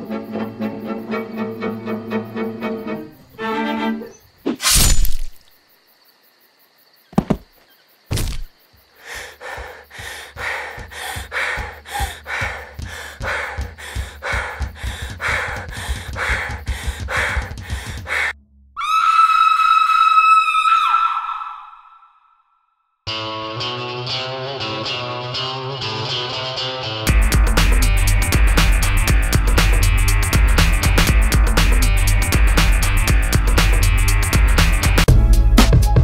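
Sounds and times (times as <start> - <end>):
thuds and knocks: 7.1 - 8.5.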